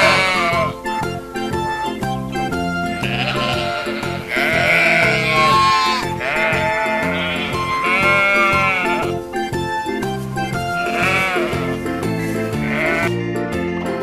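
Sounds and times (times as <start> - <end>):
sheep bleating: 0.0 - 0.9, 2.8 - 9.2, 10.7 - 11.8, 12.5 - 13.2
children's music with steady beat: 0.0 - 14.0.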